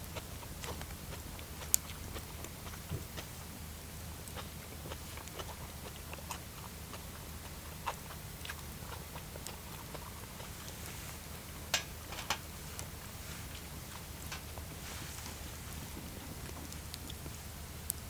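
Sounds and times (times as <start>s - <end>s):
campfire crackling and popping: 15.8s - 18.0s.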